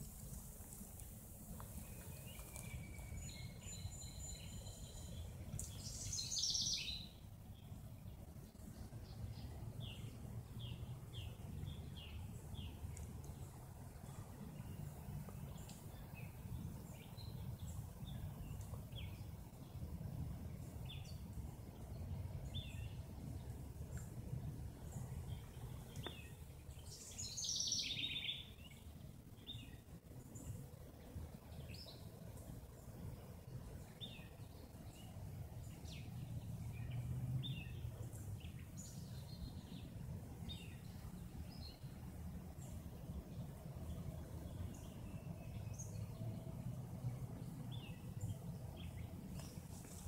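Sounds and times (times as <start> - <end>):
low outdoor rumble: 0.0 - 50.0
birds chirping: 1.5 - 30.8.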